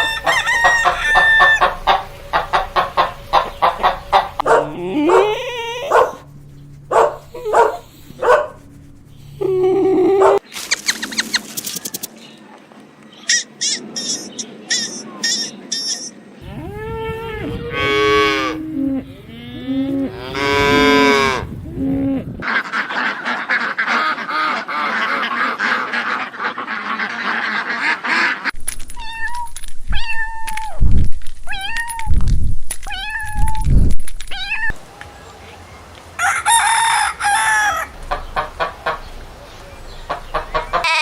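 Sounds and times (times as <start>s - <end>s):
farm animals calling: 0.0s - 10.4s, 13.2s - 28.5s, 34.7s - 41.0s.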